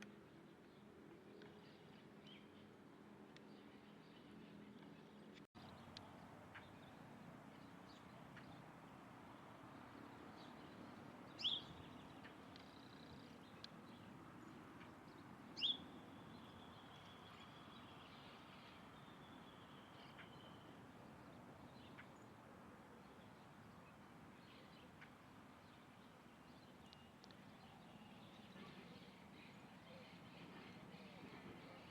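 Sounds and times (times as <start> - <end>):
faint background hiss: 0.0 - 31.9
bird chirping: 10.2 - 20.8.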